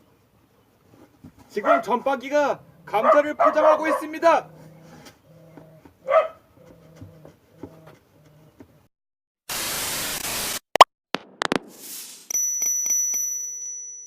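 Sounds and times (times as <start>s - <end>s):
loud static-like hiss: 9.5s - 10.6s
bell-like ding: 12.3s - 14.0s.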